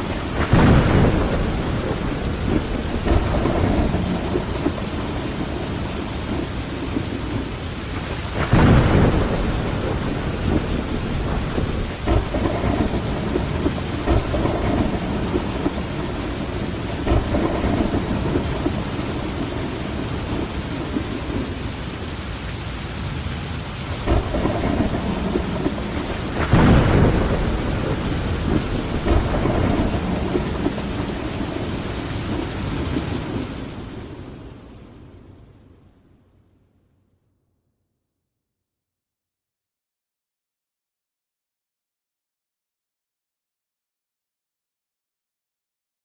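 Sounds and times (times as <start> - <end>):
rain pattering on window glass: 0.0 - 35.2
thunder rumbling: 0.0 - 35.8.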